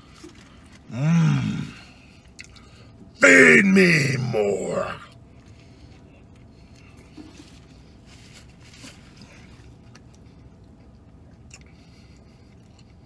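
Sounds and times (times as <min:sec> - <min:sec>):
low hum in car cabin: 0:00.0 - 0:13.0
chewing wet mouth sounds: 0:02.0 - 0:03.0, 0:09.2 - 0:13.0.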